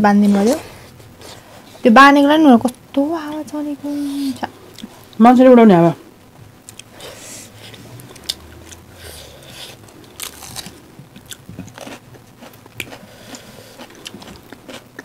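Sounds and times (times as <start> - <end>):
close-up chewing food: 6.6 - 15.0.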